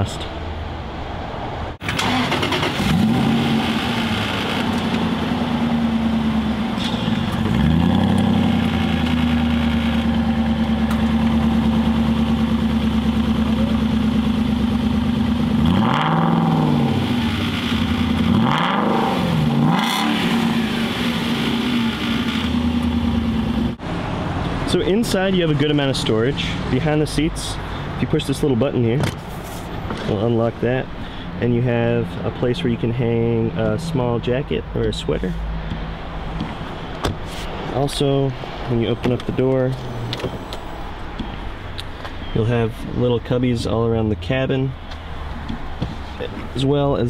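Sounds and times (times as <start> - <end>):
car engine revving: 1.8 - 24.2.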